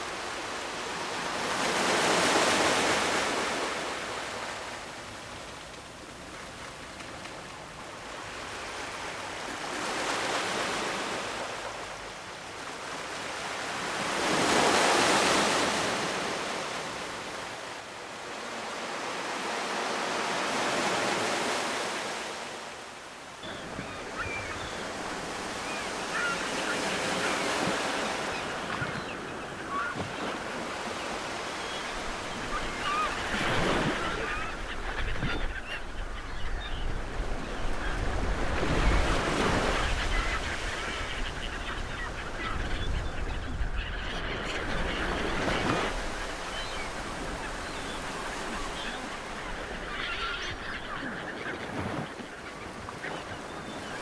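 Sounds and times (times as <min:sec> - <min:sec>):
birds squawking: 0:23.4 - 0:54.0.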